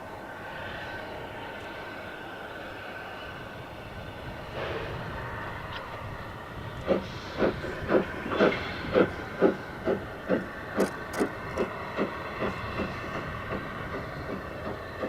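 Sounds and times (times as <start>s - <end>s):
steam locomotive exhaust chuffs: 4.5s - 15.0s.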